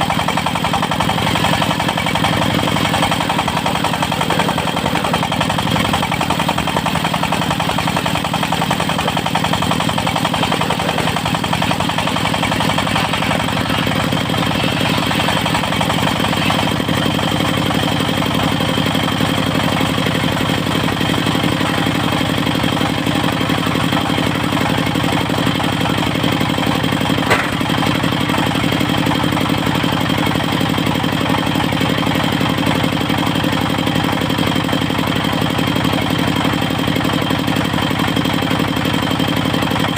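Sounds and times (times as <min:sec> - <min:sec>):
sawmill engine running: 0:00.0 - 0:39.9
sharp knock: 0:27.3 - 0:27.7.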